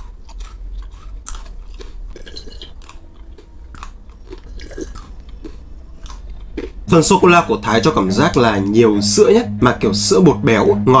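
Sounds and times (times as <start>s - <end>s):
biscuit sticks crunching: 0.0s - 7.9s.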